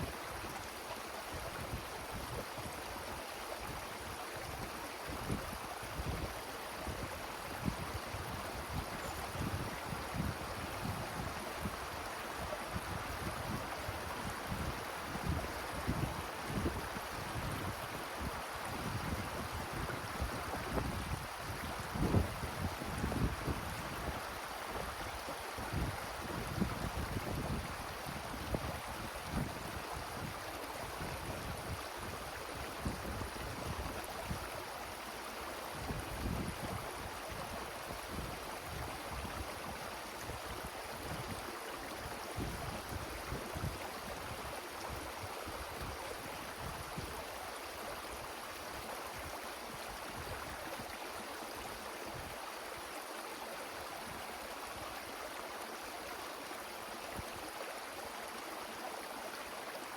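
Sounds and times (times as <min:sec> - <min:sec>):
wind rushing through trees: 0:00.0 - 0:59.9.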